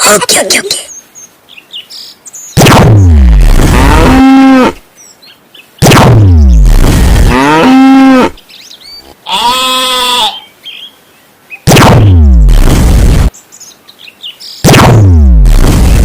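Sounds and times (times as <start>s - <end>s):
moo-like call: 3.7s - 4.8s, 7.3s - 8.4s, 9.2s - 10.4s.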